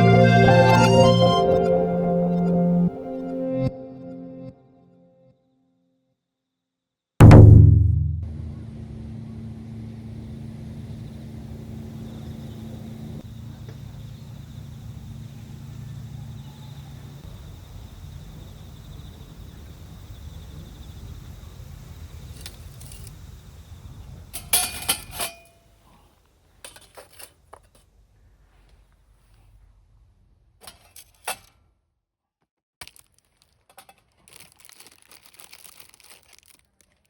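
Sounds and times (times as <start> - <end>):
steady low rumble: 7.2 - 21.9.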